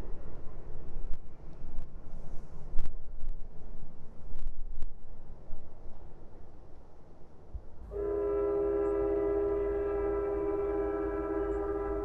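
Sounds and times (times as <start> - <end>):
distant train rumble: 0.0 - 12.0.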